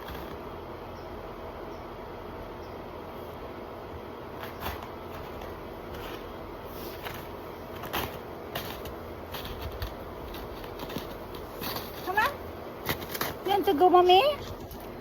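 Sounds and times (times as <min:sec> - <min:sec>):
footsteps crunching through snow: 0:04.4 - 0:13.4.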